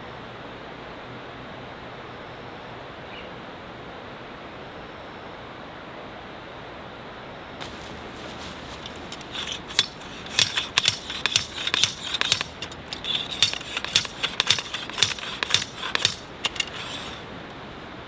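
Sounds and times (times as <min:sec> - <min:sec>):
steady background hiss: 0:07.6 - 0:18.0.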